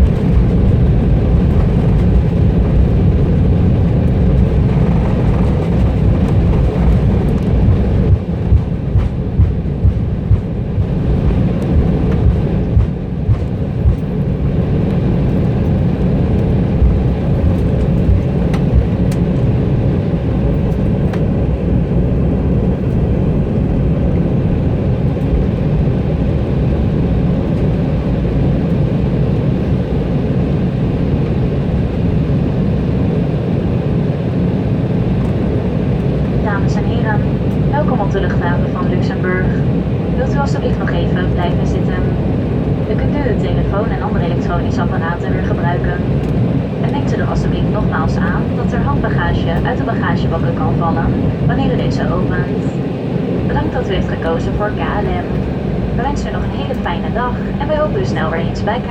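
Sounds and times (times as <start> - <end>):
airplane cabin rumble while taxiing: 0.0 - 58.9.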